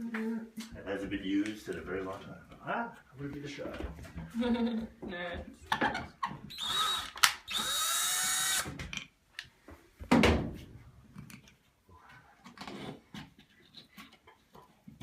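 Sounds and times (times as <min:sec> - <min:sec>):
cordless drill whirring: 0:06.5 - 0:08.7.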